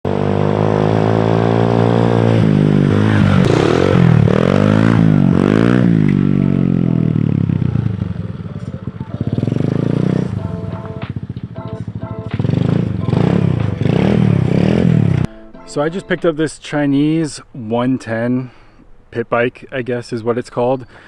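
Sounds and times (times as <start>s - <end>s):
motorbike engine revving: 0.1s - 15.3s.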